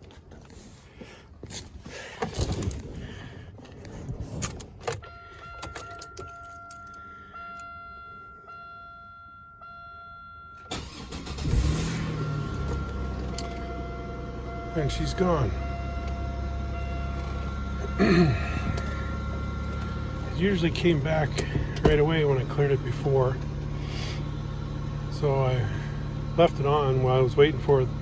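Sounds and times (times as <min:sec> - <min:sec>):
keys jingling: 0:04.3 - 0:07.7
car engine starting and idling: 0:10.6 - 0:28.0.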